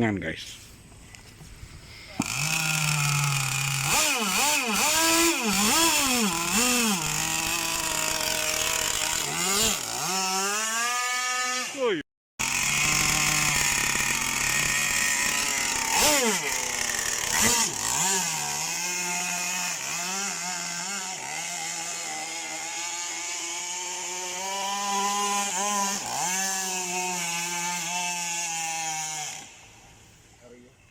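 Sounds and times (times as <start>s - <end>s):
small two-stroke engine buzzing: 1.9s - 30.7s.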